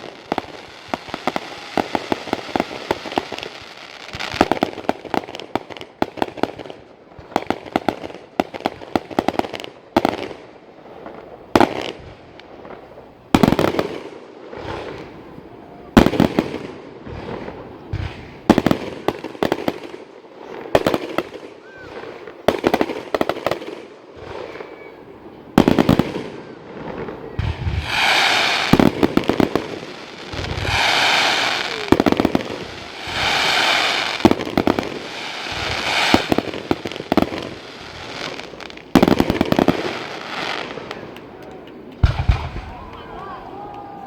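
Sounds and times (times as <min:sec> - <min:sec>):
fireworks bangs and crackling: 0:00.0 - 0:44.0
fireworks hissing: 0:26.9 - 0:40.8.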